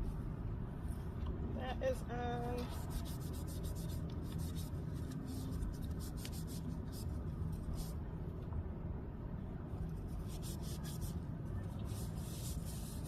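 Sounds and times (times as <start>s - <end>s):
hands scratchy rubbing: 2.6s - 7.9s.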